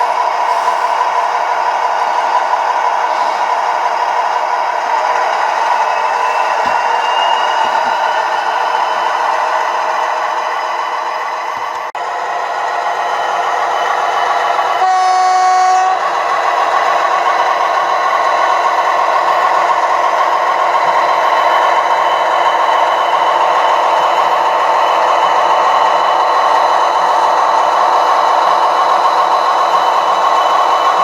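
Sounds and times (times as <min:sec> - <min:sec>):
model train engine sound: 0:00.0 - 0:31.0
train horn blast: 0:14.8 - 0:16.0.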